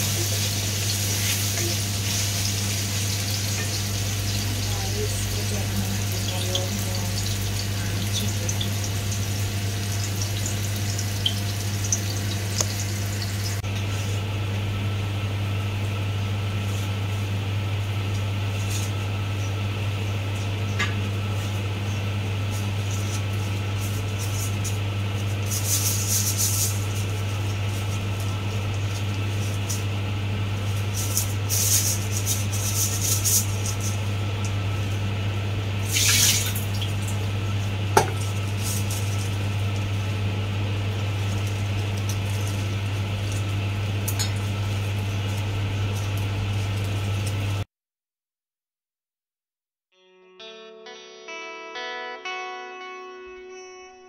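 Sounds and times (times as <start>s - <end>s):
food sizzling in a wok: 0.0s - 14.2s, 21.2s - 34.9s, 35.8s - 47.7s
steady low hum: 0.0s - 47.7s
water splashing in a bowl: 35.9s - 37.2s.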